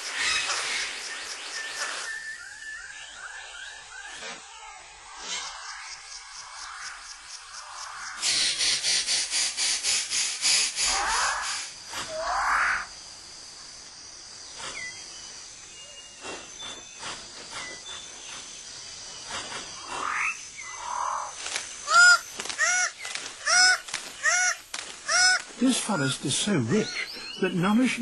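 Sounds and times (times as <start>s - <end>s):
high insect drone: 0.0s - 28.0s
rapid repeated arched calls: 5.0s - 12.9s, 19.2s - 26.1s.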